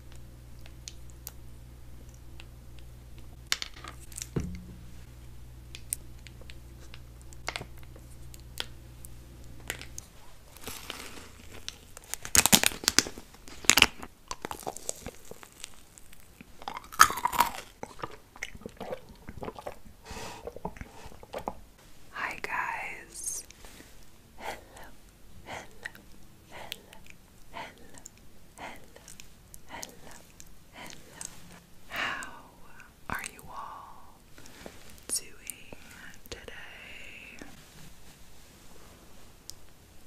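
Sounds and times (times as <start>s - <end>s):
steady low hum: 0.0s - 40.0s
loud crunching and chewing: 9.7s - 21.6s.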